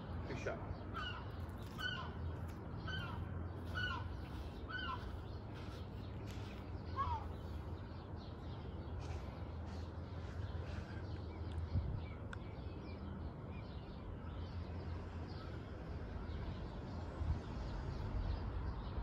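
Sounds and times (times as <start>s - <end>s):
bird calling: 0.8s - 7.8s.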